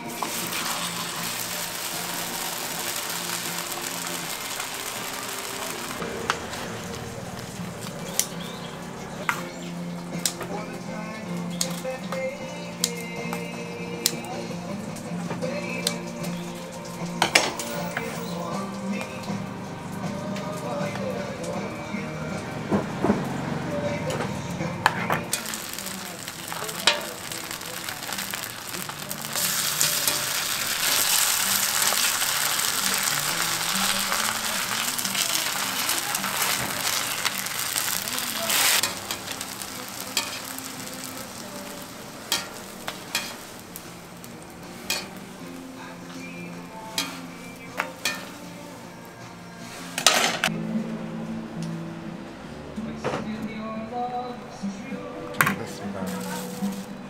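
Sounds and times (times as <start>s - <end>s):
food sizzling in hot oil: 0.0s - 8.8s, 14.1s - 19.4s, 25.2s - 48.8s, 56.0s - 57.0s.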